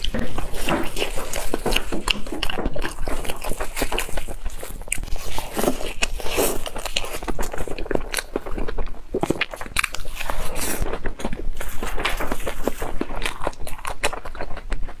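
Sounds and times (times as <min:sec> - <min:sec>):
crunchy chewing and biting: 0:00.0 - 0:15.0
wet mouth sounds: 0:00.0 - 0:15.0.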